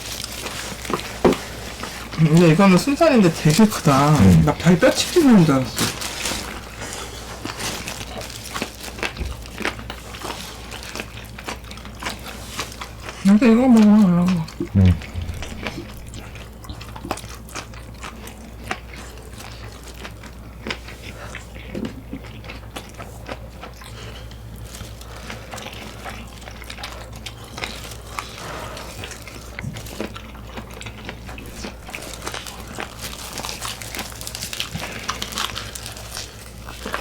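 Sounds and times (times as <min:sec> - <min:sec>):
chewing crunchy fried chicken: 0:00.0 - 0:37.0
low steady hum: 0:02.1 - 0:06.8, 0:12.7 - 0:17.3.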